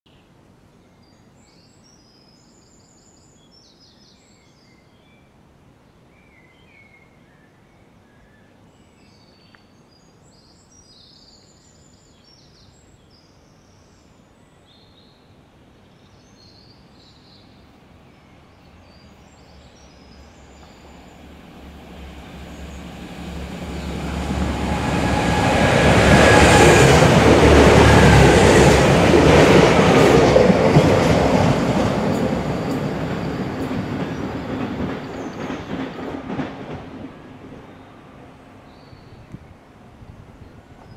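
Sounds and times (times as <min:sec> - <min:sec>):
birds chirping: 0:18.5 - 0:39.5
diesel train approaching: 0:20.0 - 0:39.9.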